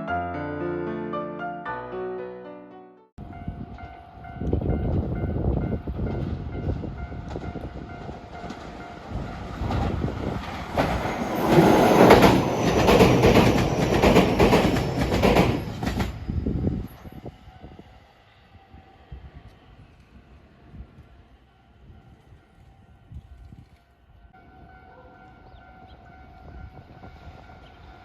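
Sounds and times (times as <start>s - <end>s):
train wheels clacking on rails: 6.0s - 17.1s.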